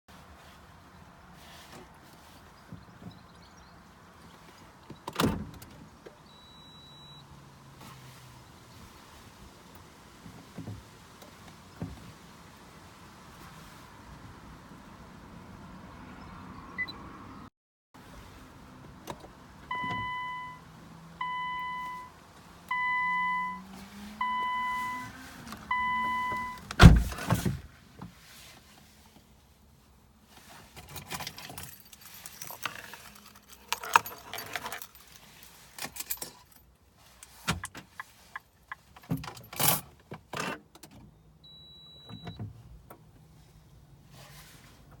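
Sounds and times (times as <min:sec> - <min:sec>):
car warning chime beeping: 0:06.3 - 0:07.2, 0:16.8 - 0:17.0, 0:19.7 - 0:20.6, 0:21.2 - 0:26.7, 0:41.4 - 0:42.4
keys jangling and clicking: 0:30.9 - 0:36.6.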